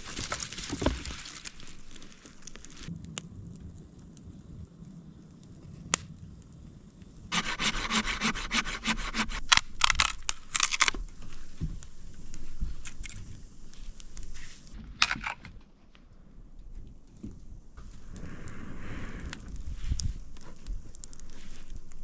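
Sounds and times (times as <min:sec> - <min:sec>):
rubbing and scraping wood: 0:00.0 - 0:02.9, 0:07.3 - 0:11.8
sharp wood cracks: 0:00.0 - 0:03.2, 0:07.3 - 0:14.3, 0:14.9 - 0:15.7
rhythmic back-and-forth strokes: 0:07.3 - 0:09.6.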